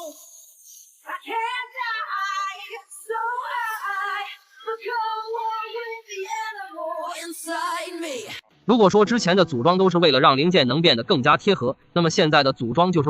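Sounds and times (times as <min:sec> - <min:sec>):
high voice singing: 0:00.0 - 0:08.4
background music: 0:00.0 - 0:13.0.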